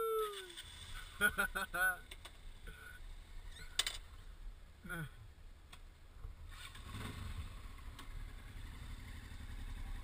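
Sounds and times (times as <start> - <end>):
motorcycle engine idling: 7.2 - 10.0.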